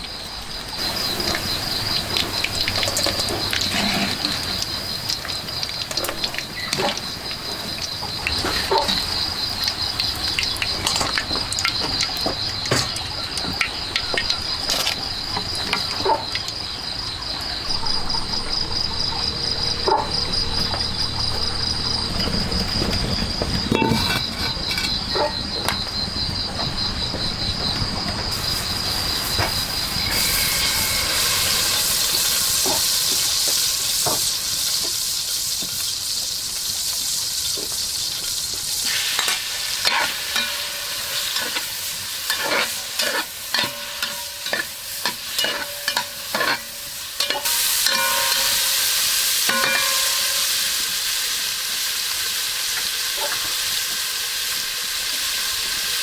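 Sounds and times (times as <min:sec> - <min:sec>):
food sizzling in a pan: 0:00.7 - 0:17.2, 0:28.3 - 0:56.0.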